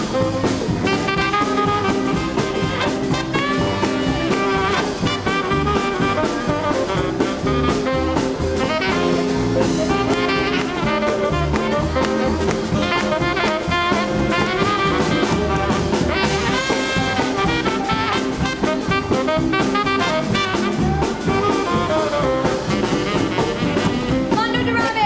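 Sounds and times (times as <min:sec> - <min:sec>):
bass: 0:00.0 - 0:25.0
drum kit: 0:00.0 - 0:25.0
saxophone and brass horns: 0:00.0 - 0:25.0.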